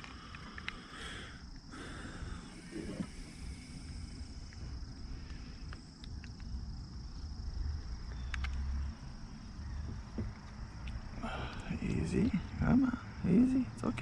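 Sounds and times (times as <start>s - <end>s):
light clicks: 0.0s - 0.9s, 8.1s - 8.6s
high-pitched insect drone: 0.0s - 10.0s.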